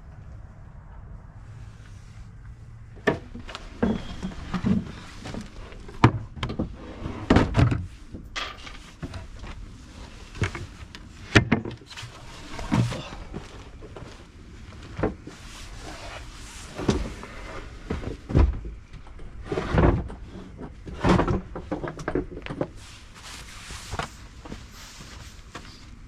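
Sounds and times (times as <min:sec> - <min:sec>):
wooden panels knocking and clattering: 0:11.3 - 0:11.9.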